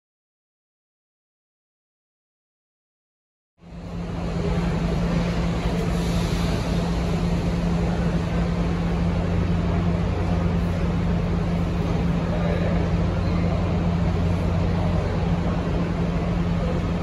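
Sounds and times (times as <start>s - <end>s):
parked train low hum: 3.6s - 17.0s.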